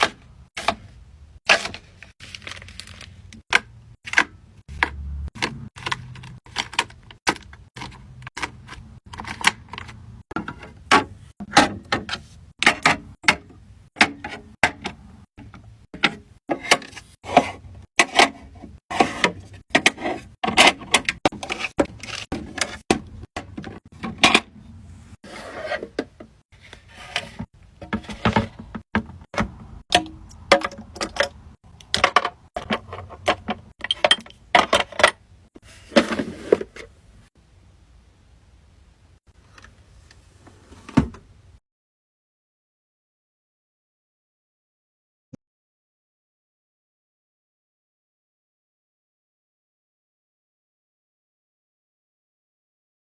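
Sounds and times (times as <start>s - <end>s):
small containers clattering: 0.0s - 13.2s, 26.8s - 35.2s.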